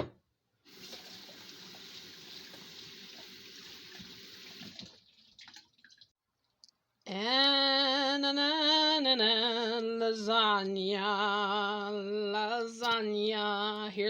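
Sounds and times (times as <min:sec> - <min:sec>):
tap running into sink: 0:00.7 - 0:05.0.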